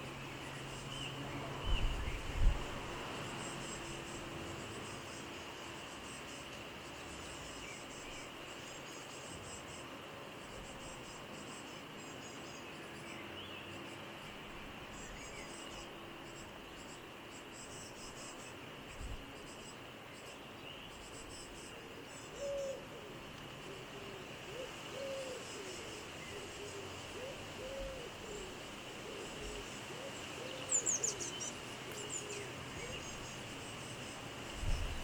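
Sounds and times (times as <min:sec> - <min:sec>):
bird cooing: 0:21.9 - 0:31.2.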